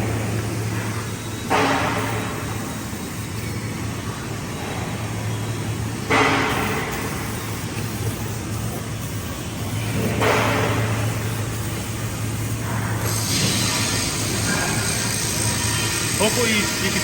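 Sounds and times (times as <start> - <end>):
paint sprayer humming: 0.0 - 17.0
spray burst: 1.5 - 3.7, 6.1 - 17.0.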